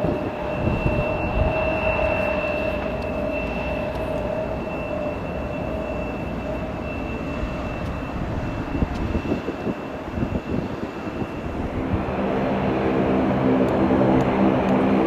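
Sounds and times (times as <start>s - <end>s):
aircraft engine whine: 0.0s - 15.0s
approaching aircraft engine hum: 0.0s - 15.0s
low rumble: 11.4s - 15.0s.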